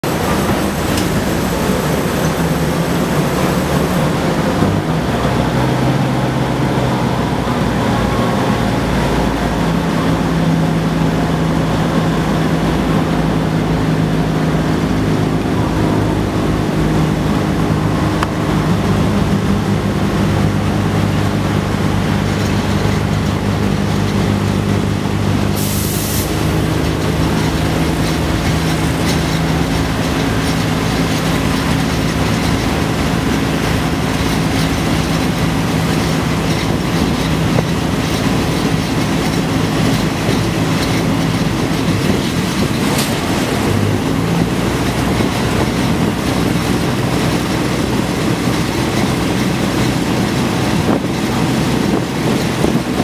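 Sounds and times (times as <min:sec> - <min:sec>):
train engine drone: 0:00.0 - 0:53.0
brief hiss: 0:25.6 - 0:26.3.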